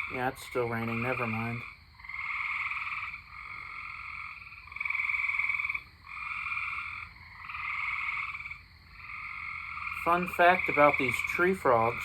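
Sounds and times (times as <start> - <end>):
tree frogs trilling: 0.0 - 12.0.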